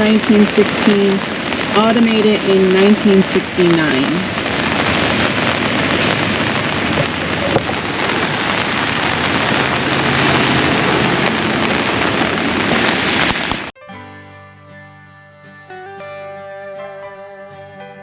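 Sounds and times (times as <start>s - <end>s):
rain on an umbrella: 0.0s - 13.8s
plucked-string music: 13.8s - 18.0s.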